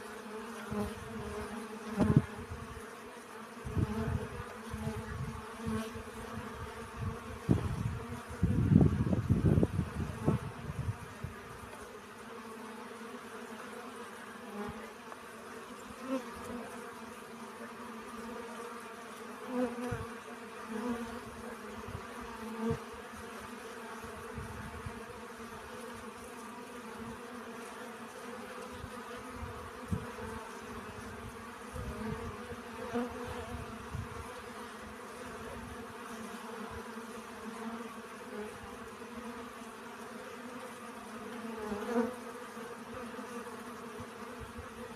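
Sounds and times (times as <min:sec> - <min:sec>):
bees buzzing: 0:00.0 - 0:44.9.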